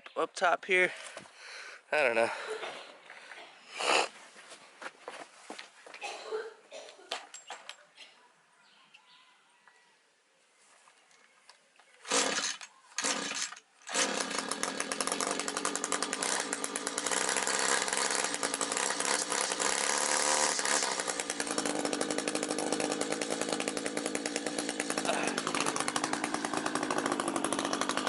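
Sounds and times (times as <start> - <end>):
two-stroke engine starting and running: 12.0 - 28.0.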